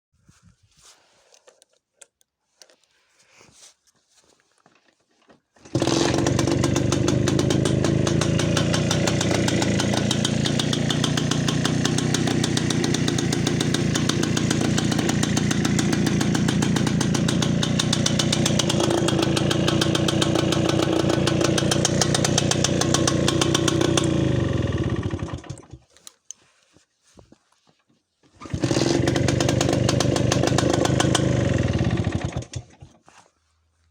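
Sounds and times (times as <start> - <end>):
two-stroke motorcycle engine running: 5.6 - 25.8, 28.4 - 33.0.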